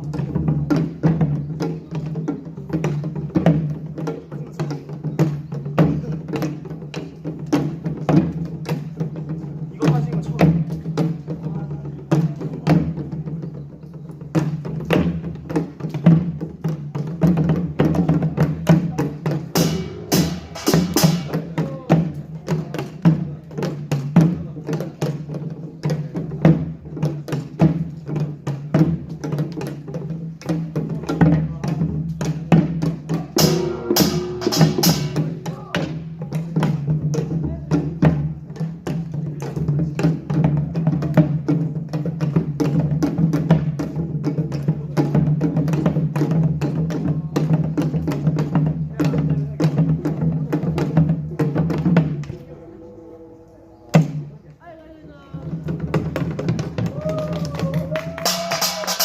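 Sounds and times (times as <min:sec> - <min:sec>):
drums: 0:00.0 - 0:59.0
small gongs clanging: 0:33.4 - 0:35.5.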